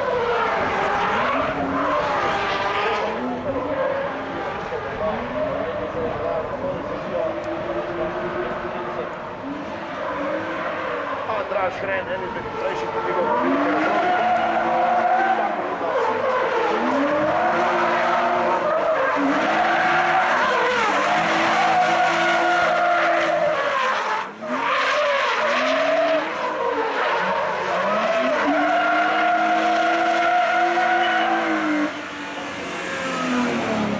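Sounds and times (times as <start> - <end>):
car engine revving: 0.0 - 33.9
tyres squealing: 12.7 - 33.9.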